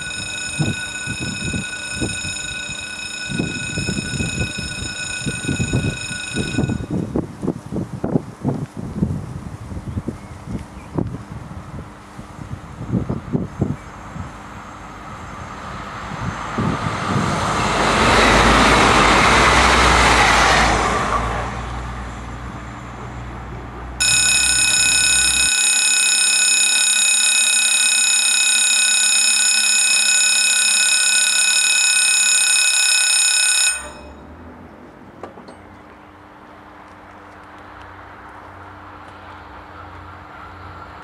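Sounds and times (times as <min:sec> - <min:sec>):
high-pitched electronic alarm tone: 0:00.0 - 0:07.0, 0:24.0 - 0:34.2
railcar passing: 0:00.0 - 0:07.4, 0:14.4 - 0:36.8.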